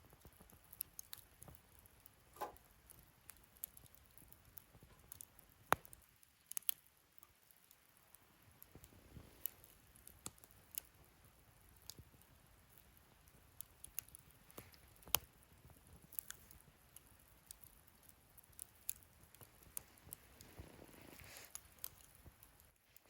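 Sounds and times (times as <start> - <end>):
wood fire crackling: 0.0 - 23.0
sharp fire pops: 0.1 - 6.1.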